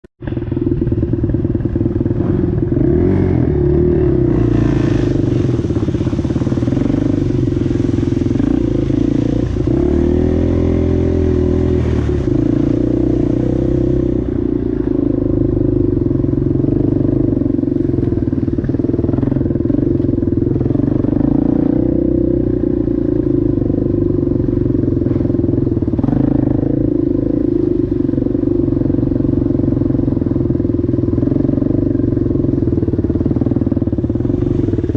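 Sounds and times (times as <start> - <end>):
atv engine revving: 0.2 - 34.9.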